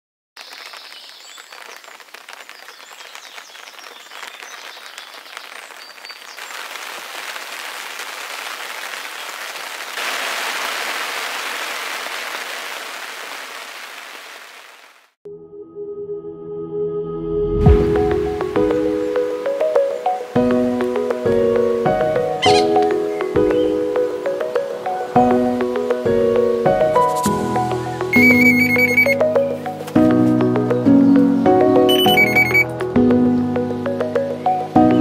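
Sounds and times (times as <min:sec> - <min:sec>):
steady rain: 0:00.4 - 0:15.2, 0:18.1 - 0:32.8
music: 0:15.3 - 0:35.0
faint high chirps: 0:28.2 - 0:29.2, 0:31.9 - 0:32.7.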